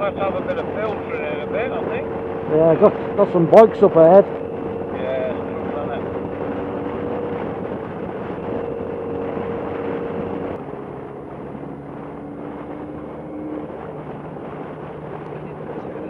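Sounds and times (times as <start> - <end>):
motorcycle engine: 0.0 - 15.2
wind rush: 0.0 - 16.0.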